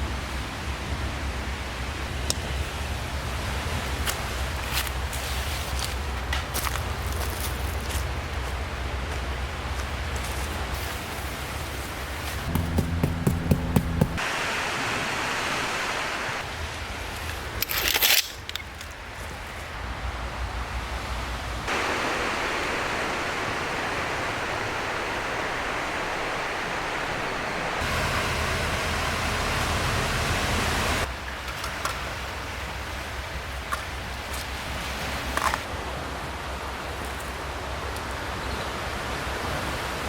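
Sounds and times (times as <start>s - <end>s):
wind: 0.0s - 40.0s
sea surf: 12.5s - 16.6s, 21.7s - 31.0s.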